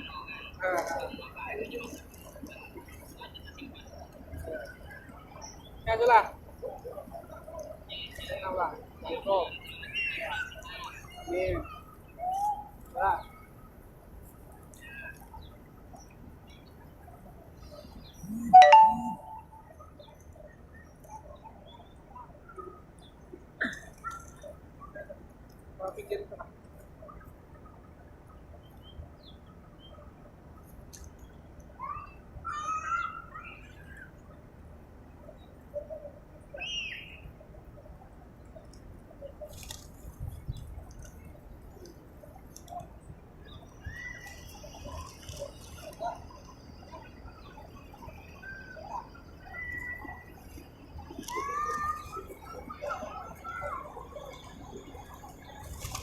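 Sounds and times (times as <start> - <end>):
faint bird chirps: 43.4 - 55.8.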